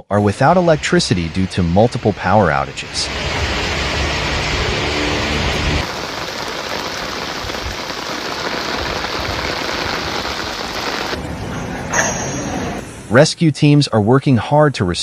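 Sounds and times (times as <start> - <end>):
low hum: 0.2 - 13.1
heavy rain pouring: 0.4 - 11.2.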